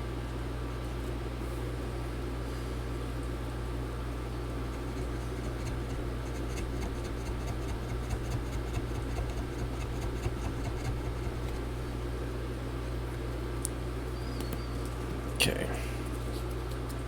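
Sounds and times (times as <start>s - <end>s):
steady low hum: 1.4s - 14.2s
plastic card scraping and clicking: 4.8s - 11.8s.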